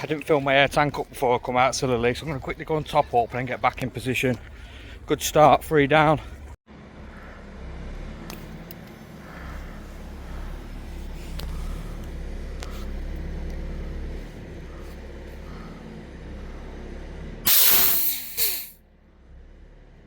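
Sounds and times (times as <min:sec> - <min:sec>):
high-pressure air hissing: 0:17.5 - 0:18.8.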